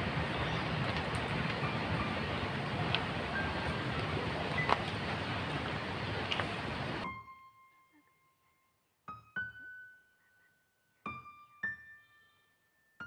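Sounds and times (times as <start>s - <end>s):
steady rush of noise: 0.0s - 7.0s
soft piano notes: 0.0s - 7.8s.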